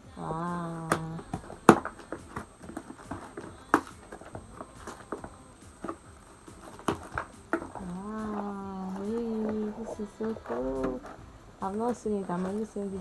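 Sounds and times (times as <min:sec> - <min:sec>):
package knocks and crackles: 0:00.7 - 0:13.0.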